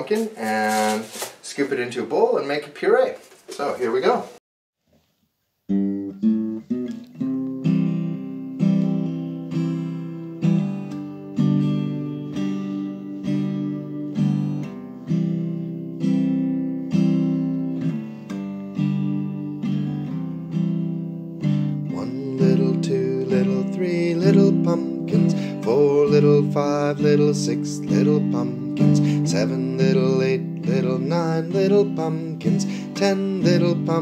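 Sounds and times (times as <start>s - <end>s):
guitar strumming chords: 5.7s - 34.0s
person singing: 21.8s - 34.0s.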